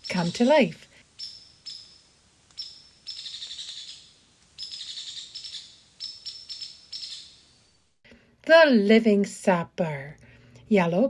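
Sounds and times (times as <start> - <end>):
woodpecker calls: 0.0 - 7.8
woodpecker rattling call: 0.0 - 7.8.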